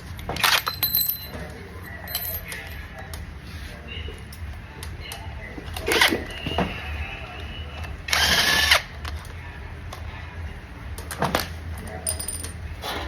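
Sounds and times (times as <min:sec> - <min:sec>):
low steady hum: 0:00.0 - 0:13.0
power drill whirring: 0:08.1 - 0:08.8.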